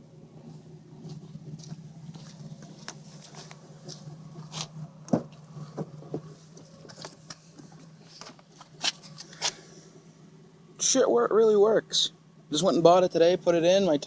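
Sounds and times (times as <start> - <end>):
car engine idling: 0.0 - 14.0
sharp clicks and rustles: 1.0 - 9.8.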